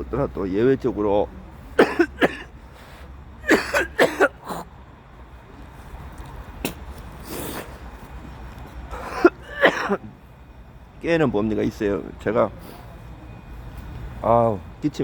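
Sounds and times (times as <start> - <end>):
man coughing harshly: 1.8 - 2.5, 3.4 - 4.7, 9.0 - 10.0.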